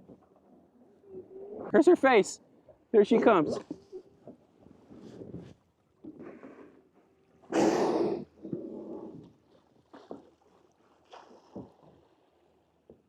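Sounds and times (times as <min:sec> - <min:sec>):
killer whale blowing: 0:06.2 - 0:09.3
water splashing: 0:08.2 - 0:13.0.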